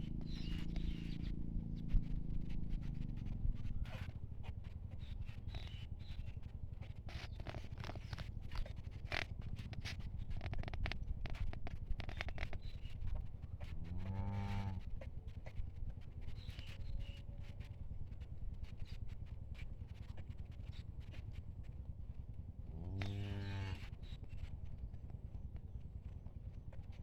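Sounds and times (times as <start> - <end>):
cow mooing: 14.0 - 14.8, 22.8 - 23.8.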